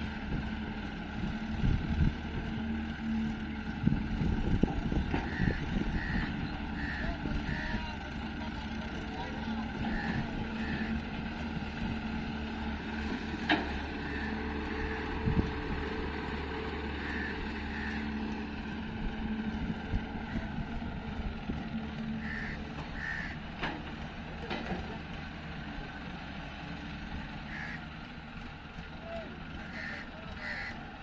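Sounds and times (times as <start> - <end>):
heavy machinery diesel engine running: 0.0 - 31.0
crows cawing: 5.2 - 7.9, 9.6 - 11.5, 13.7 - 15.8, 16.8 - 18.7, 22.1 - 23.6, 27.3 - 28.0, 29.6 - 30.9.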